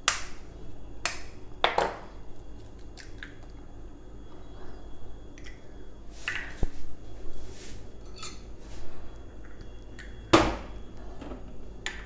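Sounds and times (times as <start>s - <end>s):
utensils and dishes clinking: 8.0s - 8.5s.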